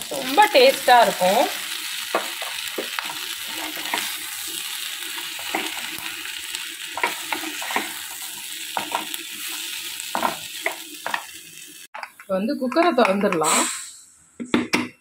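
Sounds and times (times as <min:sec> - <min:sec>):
food sizzling in oil: 0:00.0 - 0:14.0
spatula scraping pan: 0:02.9 - 0:04.6, 0:06.9 - 0:11.3.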